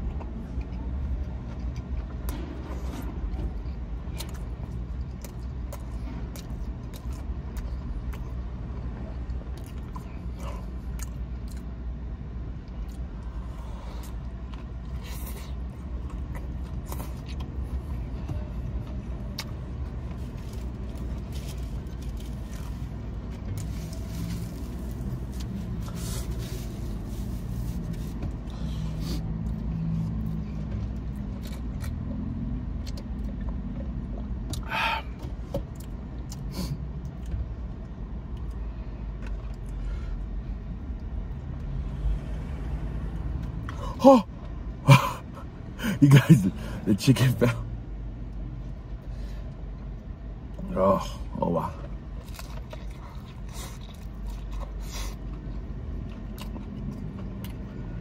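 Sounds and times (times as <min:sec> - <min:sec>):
low traffic rumble: 0:00.0 - 0:58.0
crunchy chewing: 0:04.0 - 0:11.7, 0:52.1 - 0:57.8.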